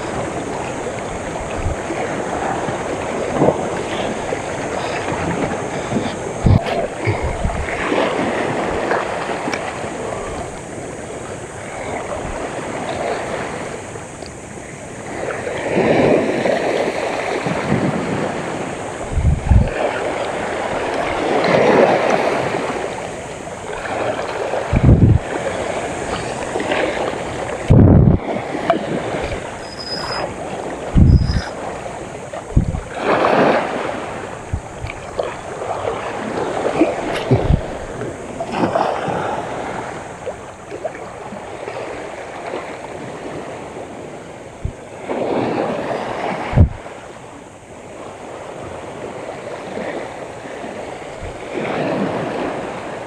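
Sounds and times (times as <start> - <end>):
sea waves washing in: 0.0 - 53.0
wind on microphone: 0.0 - 53.0
low thumps: 27.7 - 28.2, 32.5 - 32.8.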